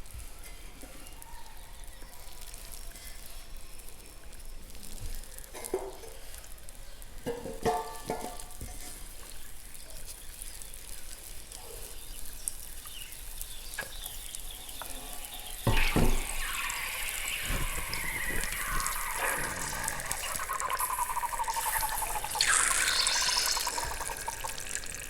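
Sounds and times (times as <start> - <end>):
chalk balls fizzing in water: 8.5 - 25.0
small plops: 15.5 - 25.0
water splash: 15.6 - 25.0.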